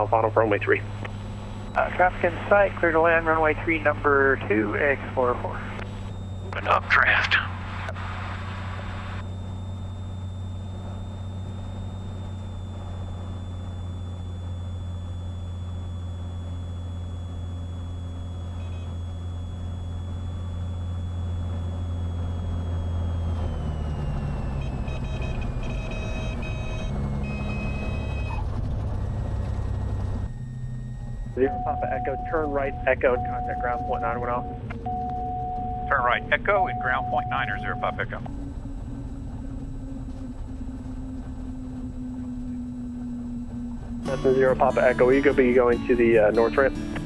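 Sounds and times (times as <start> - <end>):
high tone sliding down: 0.0 - 47.0
propeller engine droning: 0.0 - 47.0
short repeated beeping tones: 9.2 - 38.6.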